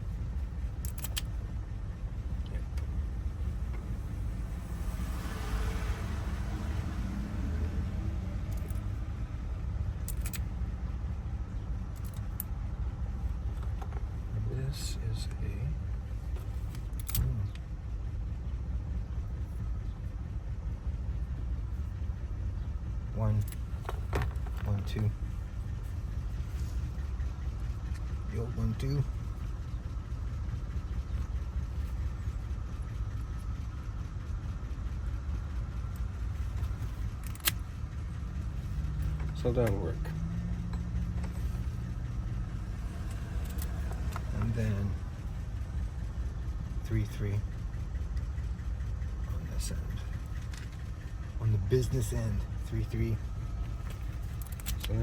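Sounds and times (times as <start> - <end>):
engine idling: 0.0 - 55.0
faint steady whine: 0.0 - 55.0
low background rumble: 0.0 - 55.0
light clicks of small metal parts: 0.8 - 1.3, 10.0 - 10.5, 16.3 - 17.7, 53.8 - 55.0.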